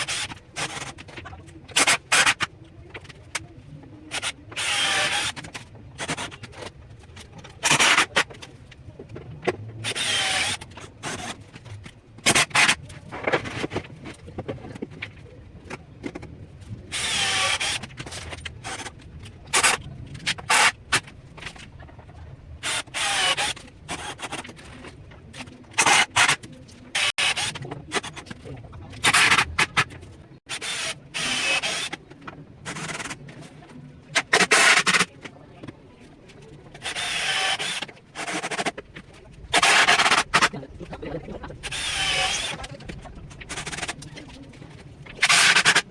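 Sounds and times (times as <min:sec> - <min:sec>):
power tool cutting wood board: 0:04.1 - 0:05.4, 0:09.8 - 0:10.6, 0:16.9 - 0:17.9, 0:22.6 - 0:24.3, 0:27.0 - 0:27.6, 0:30.5 - 0:32.0, 0:36.8 - 0:38.7, 0:41.6 - 0:42.6.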